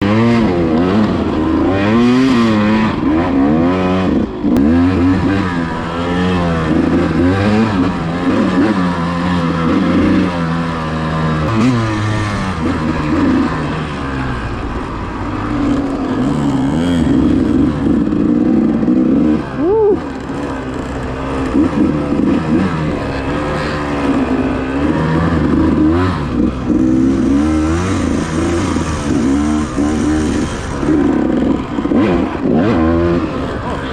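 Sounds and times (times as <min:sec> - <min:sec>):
dirt bike engine revving: 0:00.0 - 0:33.9
clatter: 0:20.0 - 0:33.9.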